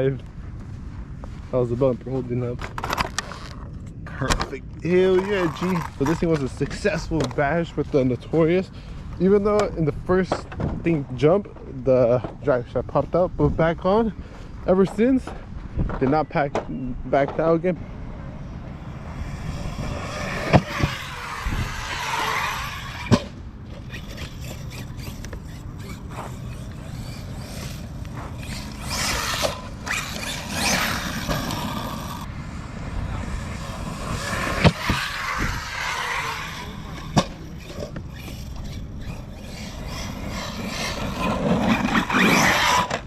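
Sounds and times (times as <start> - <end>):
tyres scraping over ground: 0.0 - 13.1, 13.9 - 43.0
electric motor whining: 18.0 - 43.0
sharp knocks from landings: 33.9 - 41.5.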